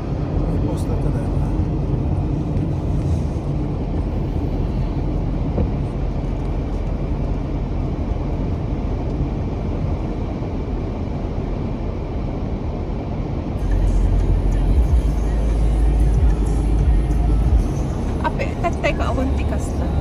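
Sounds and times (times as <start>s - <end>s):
car engine and tyre noise: 0.0s - 20.0s.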